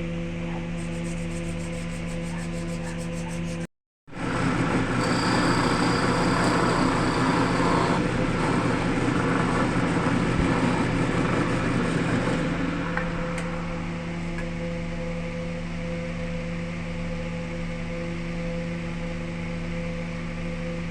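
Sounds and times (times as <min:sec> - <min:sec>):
wood lathe running: 0:04.2 - 0:14.0.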